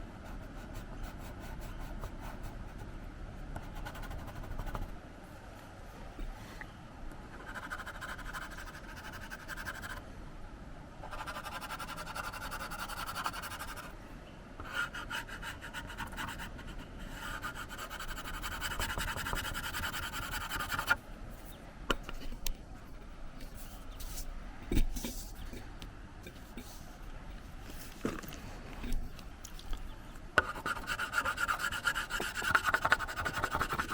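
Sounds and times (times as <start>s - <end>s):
pencil scratching on paper: 3.6s - 4.9s, 7.4s - 10.0s, 11.1s - 13.9s, 14.7s - 21.0s, 30.4s - 33.9s.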